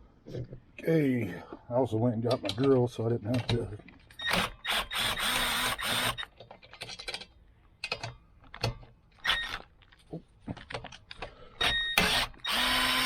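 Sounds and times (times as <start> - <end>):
cordless drill whine: 4.2 - 6.3, 11.6 - 13.0
small metal parts clicking: 6.2 - 8.8.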